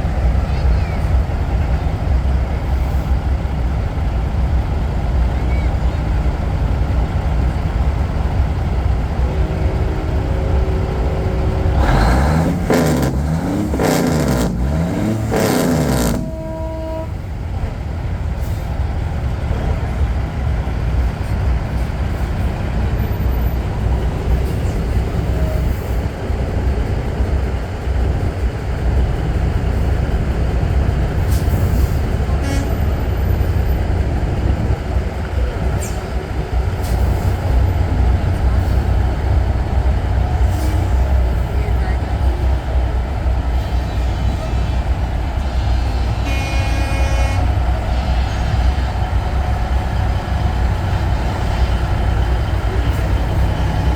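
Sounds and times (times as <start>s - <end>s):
truck diesel engines rumbling: 0.0s - 53.9s
air horns wavering: 9.2s - 17.4s, 31.3s - 33.5s, 43.5s - 53.9s.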